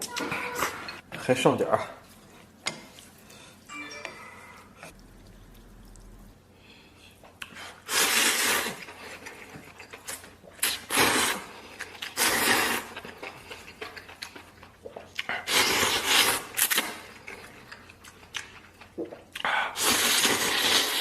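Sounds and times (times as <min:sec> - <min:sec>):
person slurping noodles: 0:07.4 - 0:09.4, 0:10.6 - 0:13.0, 0:15.3 - 0:17.0, 0:19.6 - 0:21.0.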